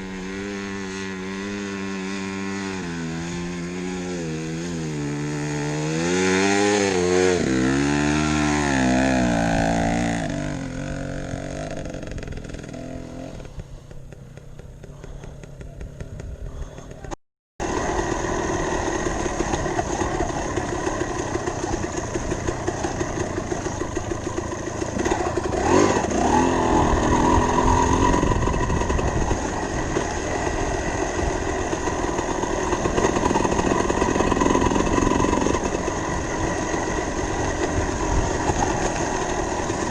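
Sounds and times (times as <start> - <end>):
dirt bike engine revving: 0.0 - 16.4, 17.6 - 39.9.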